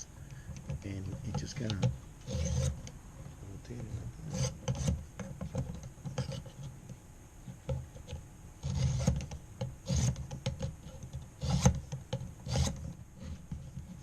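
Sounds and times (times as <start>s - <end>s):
sharpening stone scraping knife edge: 2.3s - 2.8s.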